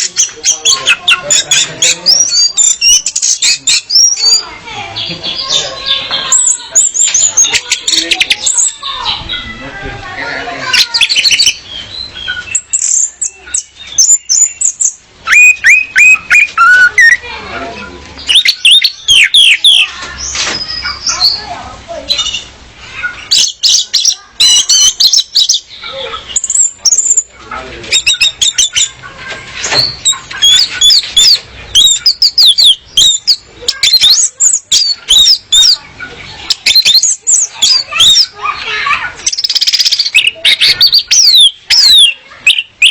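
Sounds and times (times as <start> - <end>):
thrush chirping: 0.0 - 42.9
loud clipped bird notes: 36.4 - 42.9.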